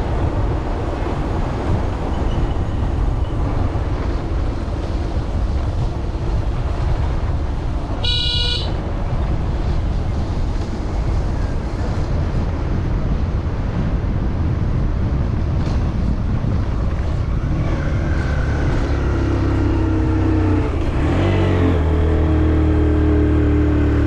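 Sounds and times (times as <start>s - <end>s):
road and wind rush: 0.0s - 24.0s
vehicle engine: 15.5s - 24.0s.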